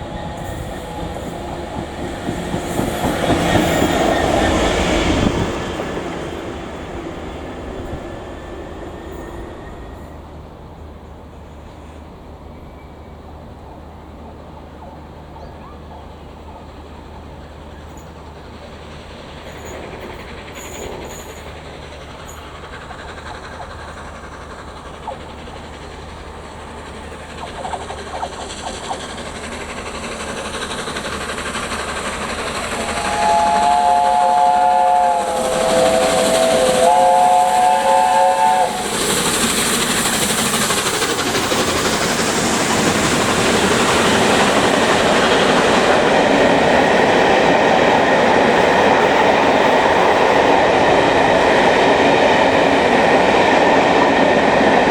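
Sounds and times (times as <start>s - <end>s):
steam locomotive running: 0.0s - 54.9s
train wheel clatter: 0.0s - 54.9s
steam whistle blasts: 32.8s - 39.2s.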